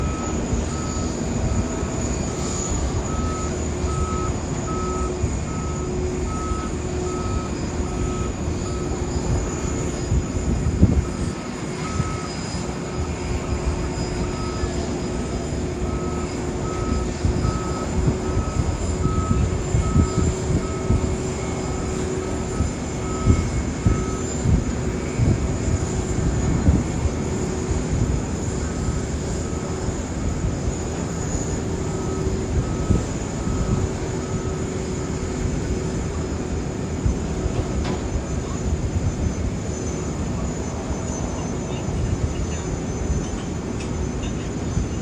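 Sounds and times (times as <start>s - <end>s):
short warning beeps: 0.0s - 9.6s, 11.0s - 15.2s, 15.8s - 24.5s.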